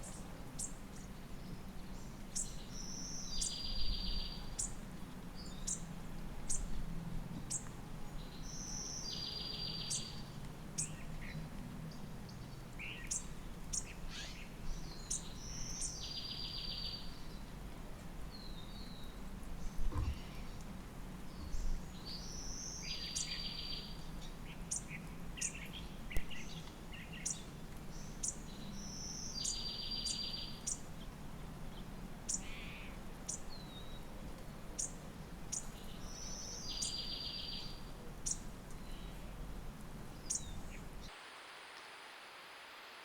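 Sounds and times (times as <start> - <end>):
steady low background noise: 0.0 - 43.0
bird trilled song: 34.8 - 39.2.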